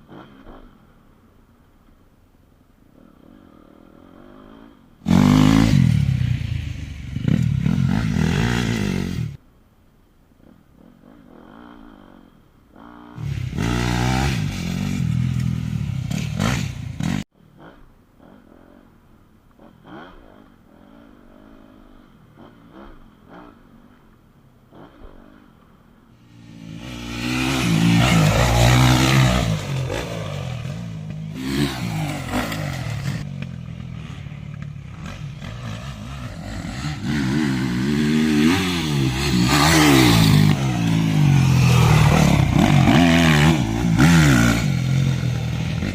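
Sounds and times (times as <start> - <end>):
motocross bike engine revving: 4.0 - 9.4, 11.4 - 17.2, 26.2 - 45.9.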